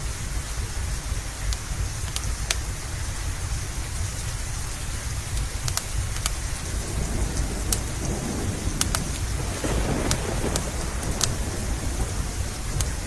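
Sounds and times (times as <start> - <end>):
steady rain: 0.0 - 13.0
wood fire crackling: 0.0 - 13.0
low rumble of thunder: 4.0 - 13.0.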